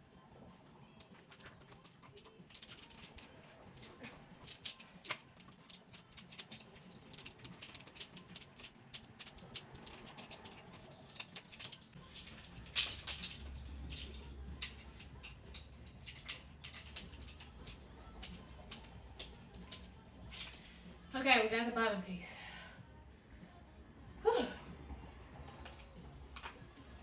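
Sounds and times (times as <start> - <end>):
plastic parts clicking and rattling: 1.0 - 21.1, 25.5 - 27.0.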